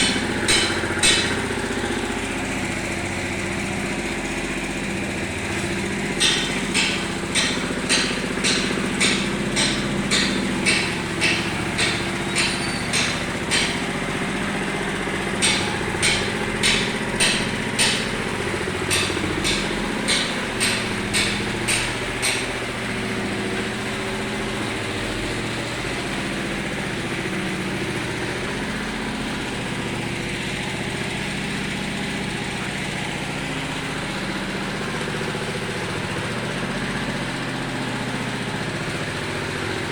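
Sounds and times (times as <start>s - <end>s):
sharp knocks: 0.0s - 26.1s
small petrol engine running: 0.0s - 39.9s.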